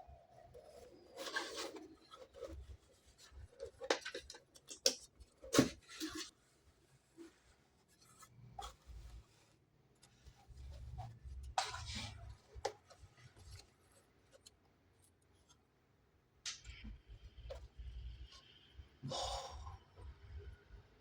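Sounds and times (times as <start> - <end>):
packaging rustling and scraping: 0.2 - 15.6.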